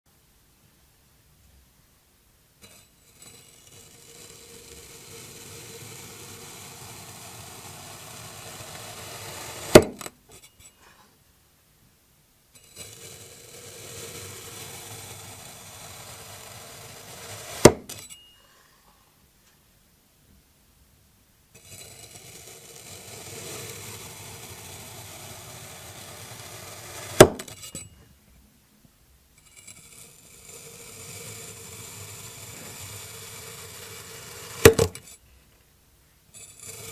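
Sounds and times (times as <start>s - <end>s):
sharp loud click: 9.7s - 10.1s, 17.6s - 18.0s, 27.1s - 27.5s, 34.6s - 35.0s.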